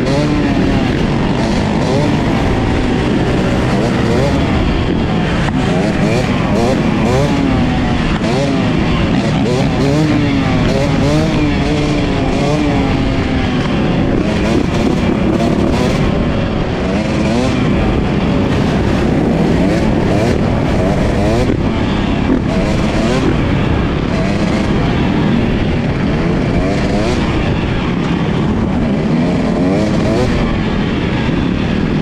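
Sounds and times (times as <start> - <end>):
motorcycle engines revving: 0.0 - 32.0.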